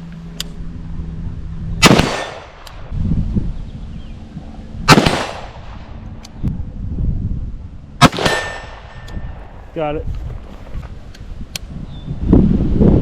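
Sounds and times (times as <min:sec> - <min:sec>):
rifle shots: 0:01.8 - 0:02.6, 0:04.9 - 0:05.8, 0:08.0 - 0:09.0.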